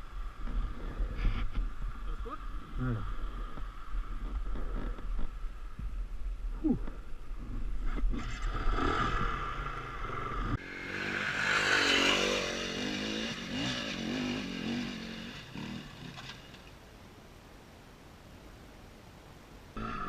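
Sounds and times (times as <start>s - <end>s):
dirt bike engine revving: 7.9s - 16.6s.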